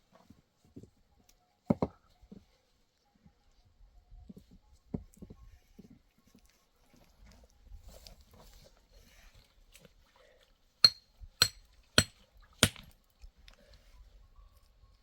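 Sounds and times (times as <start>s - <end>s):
hard object striking with clink: 10.8s - 12.8s.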